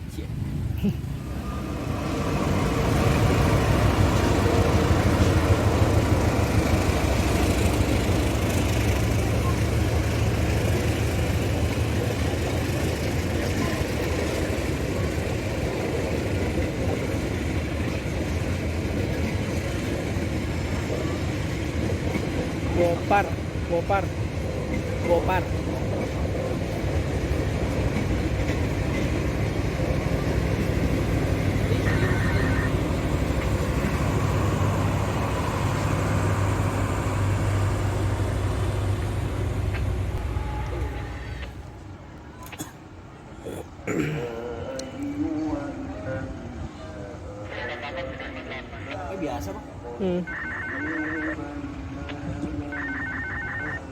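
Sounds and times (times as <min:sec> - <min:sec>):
low engine rumble: 0:00.0 - 0:42.4
train passing close by: 0:00.0 - 0:43.4, 0:44.4 - 0:50.2, 0:50.8 - 0:52.9.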